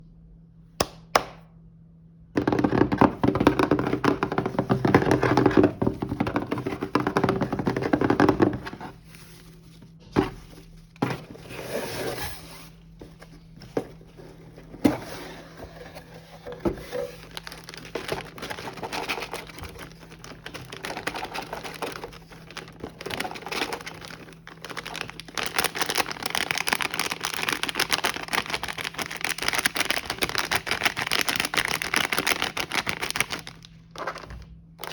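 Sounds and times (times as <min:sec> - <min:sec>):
knocks on box: 0:02.4 - 0:08.8
packaging rustling: 0:02.4 - 0:34.9.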